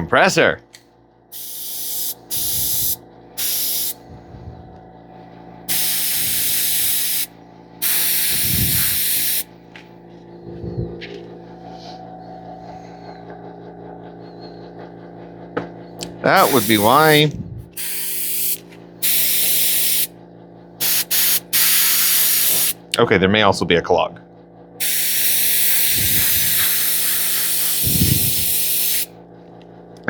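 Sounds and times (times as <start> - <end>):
steady hum: 0.0 - 29.8
airbrush spraying hissing air: 1.3 - 4.1, 5.7 - 9.5, 16.4 - 20.1, 20.8 - 22.8, 24.8 - 29.1.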